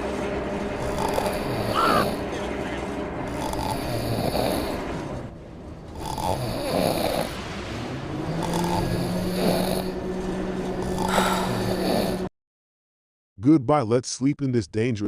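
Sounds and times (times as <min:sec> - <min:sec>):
steady low hum: 0:00.0 - 0:12.3
person snoring: 0:00.8 - 0:02.2, 0:03.3 - 0:04.8, 0:06.0 - 0:07.4, 0:08.3 - 0:10.0, 0:10.8 - 0:12.3.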